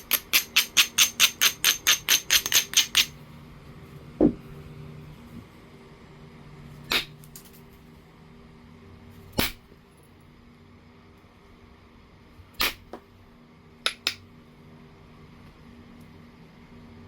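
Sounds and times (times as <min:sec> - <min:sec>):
stone knapping clicks: 0:00.0 - 0:03.1
faint steady hum: 0:00.0 - 0:17.0.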